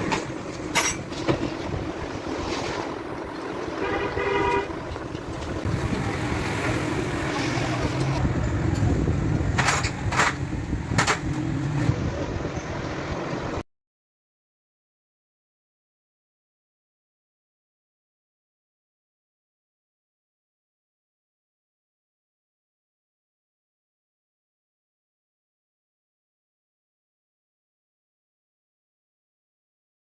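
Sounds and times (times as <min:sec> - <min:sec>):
low vehicle rumble: 0:00.0 - 0:13.6
vehicle horn tooting: 0:03.7 - 0:04.9
sharp clicks and knocks: 0:09.5 - 0:11.5.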